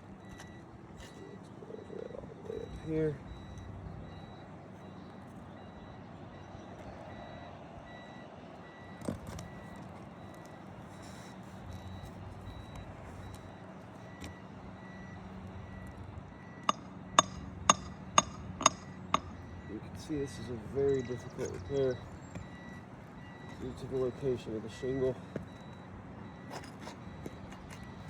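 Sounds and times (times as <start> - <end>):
outdoor background noise: 0.0 - 28.0
vehicle backup alarm beeping: 0.0 - 28.0
hammer strikes: 16.6 - 19.4.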